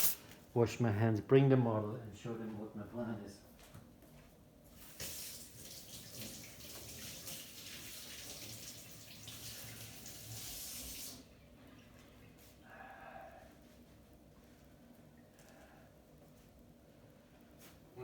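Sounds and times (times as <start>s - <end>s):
hands washing: 4.8s - 11.2s
tap water running: 4.8s - 11.3s.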